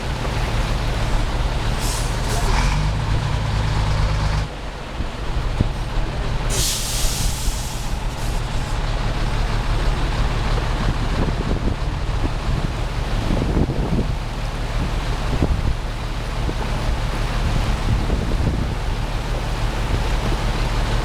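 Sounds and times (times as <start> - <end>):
heavy vehicle engine running: 0.0 - 21.0
short burst of hiss: 6.5 - 8.8.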